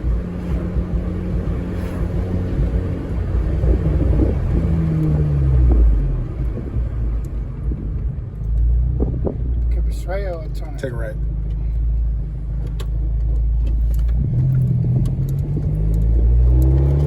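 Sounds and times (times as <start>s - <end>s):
car engine from inside cabin: 0.0s - 17.0s.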